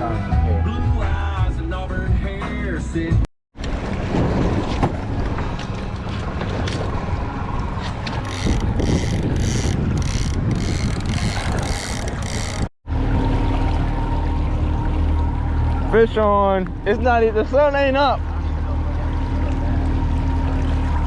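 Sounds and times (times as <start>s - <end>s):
wind buffeting microphone: 3.6s - 13.4s
boat engine running: 3.6s - 21.0s.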